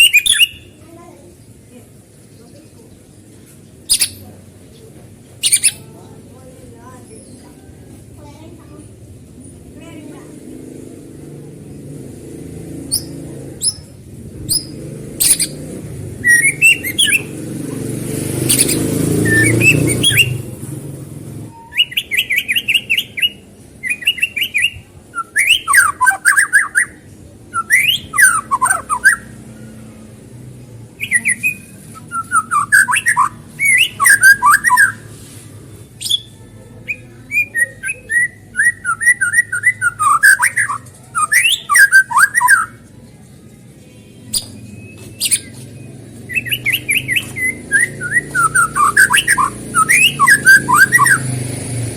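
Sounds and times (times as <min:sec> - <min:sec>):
bird song whistles and chattering: 0:00.0 - 0:00.9, 0:03.7 - 0:04.4, 0:05.3 - 0:06.0, 0:12.8 - 0:20.6, 0:21.5 - 0:29.5, 0:31.0 - 0:35.2, 0:35.8 - 0:42.9, 0:44.2 - 0:51.6.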